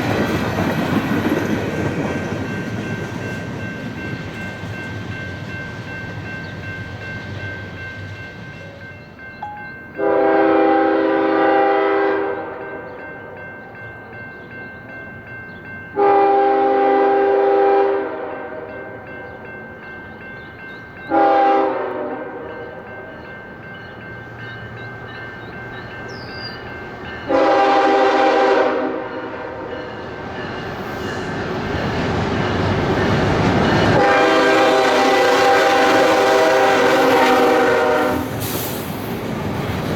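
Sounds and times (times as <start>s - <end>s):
train rumble: 0.0s - 39.9s
locomotive horn chord: 10.0s - 13.4s, 16.0s - 18.9s, 21.1s - 22.9s, 27.3s - 29.8s, 33.9s - 38.4s.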